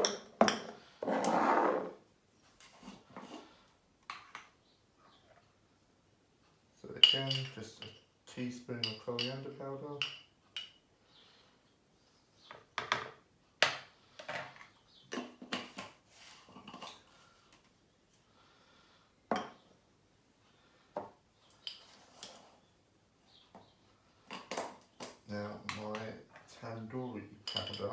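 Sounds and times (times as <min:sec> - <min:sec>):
teaspoon clinking against bowl: 0:07.0 - 0:08.0, 0:08.8 - 0:09.4, 0:27.5 - 0:27.9.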